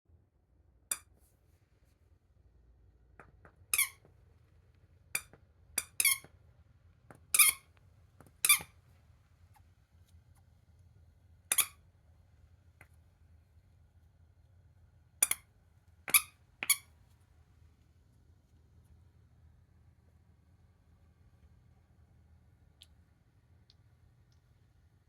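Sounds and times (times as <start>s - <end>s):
squeaky toy squeaks: 3.7s - 4.0s, 5.2s - 6.3s, 7.3s - 7.7s, 8.4s - 8.7s, 11.5s - 11.8s, 16.1s - 16.9s.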